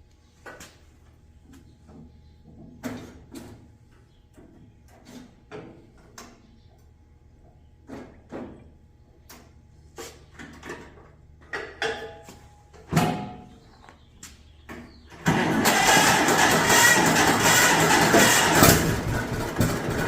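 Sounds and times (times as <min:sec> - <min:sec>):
tractor engine starting and running: 0:14.7 - 0:20.0.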